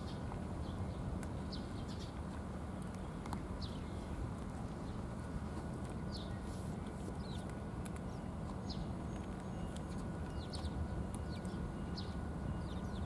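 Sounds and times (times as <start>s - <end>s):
low outdoor rumble: 0.0s - 13.0s
small bird chirping: 8.1s - 13.0s.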